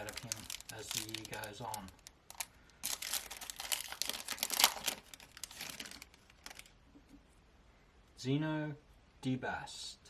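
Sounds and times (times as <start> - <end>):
cards being handled: 0.0 - 6.7
foil wrapper crinkling: 0.0 - 6.7.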